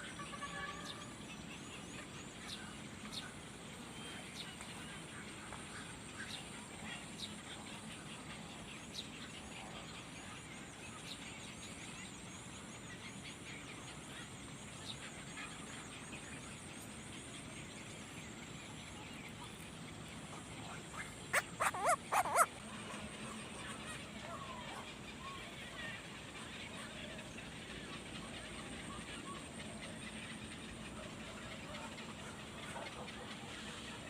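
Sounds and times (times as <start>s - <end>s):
faint outdoor background: 0.0s - 34.0s
loud short animal calls: 21.3s - 22.5s.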